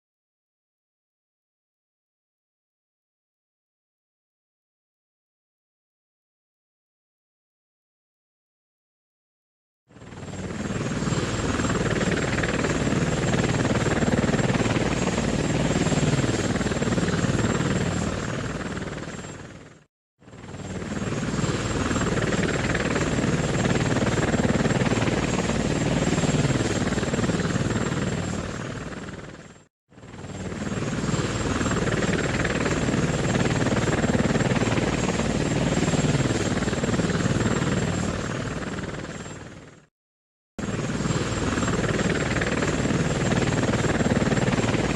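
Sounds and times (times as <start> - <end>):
helicopter rotor chop: 9.9 - 39.9, 40.6 - 44.9.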